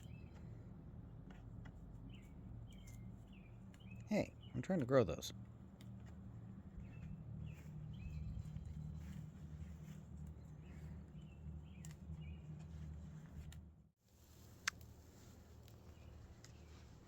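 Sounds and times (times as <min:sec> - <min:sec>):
low steady rumble: 0:00.0 - 0:17.0
bird chirps: 0:02.1 - 0:04.6.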